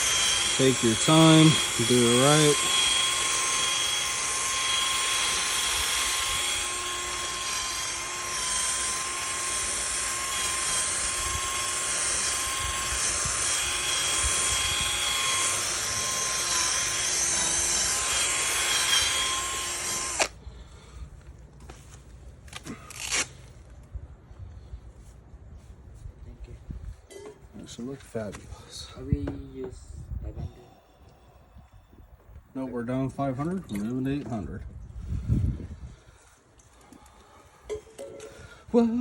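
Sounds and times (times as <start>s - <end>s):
electric drill whining: 0.0s - 20.4s.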